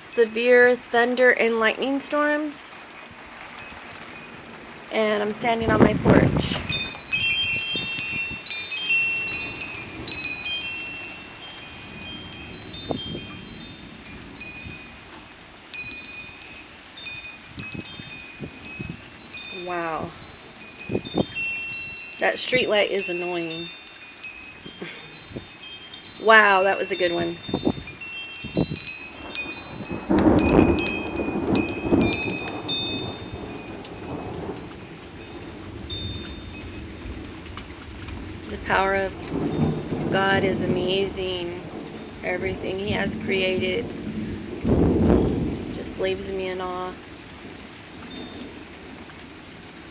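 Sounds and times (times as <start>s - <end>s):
steady rain: 0.0s - 49.9s
wind chimes ringing: 2.2s - 5.7s, 6.5s - 37.5s, 38.6s - 44.3s, 48.0s - 48.6s
thunder rumbling: 3.1s - 23.7s, 26.2s - 49.1s.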